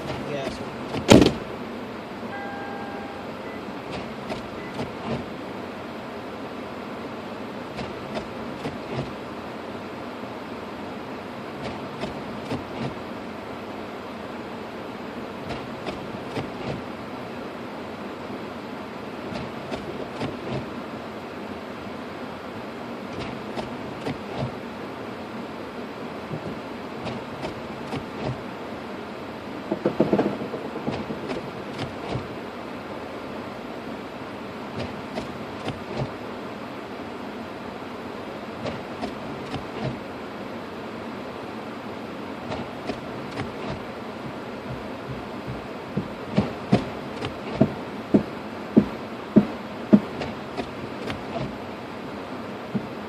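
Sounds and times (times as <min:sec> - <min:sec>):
loud thumps: 0:00.0 - 0:01.4, 0:29.7 - 0:32.3, 0:42.5 - 0:51.6
car cabin noise in snowstorm: 0:00.0 - 0:53.0
scattered clicks and knocks: 0:29.7 - 0:32.3.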